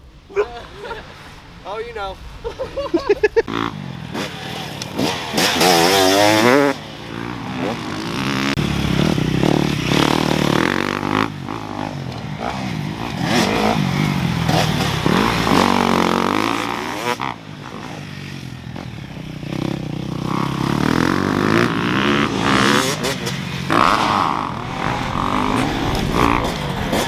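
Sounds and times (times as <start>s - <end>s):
dirt bike engine revving: 2.3s - 27.0s.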